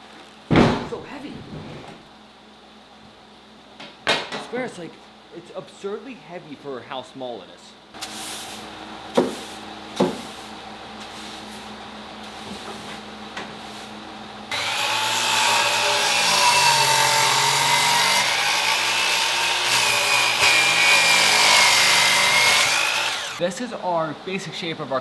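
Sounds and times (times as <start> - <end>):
thickness planer whining: 14.5 - 23.5.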